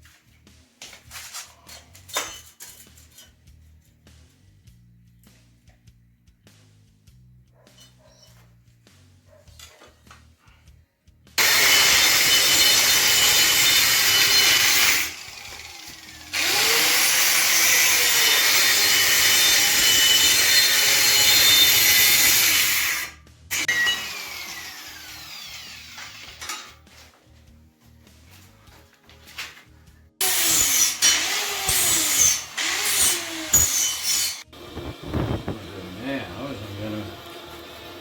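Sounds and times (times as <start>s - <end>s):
angle grinder cutting metal: 11.4s - 26.8s, 30.2s - 38.0s.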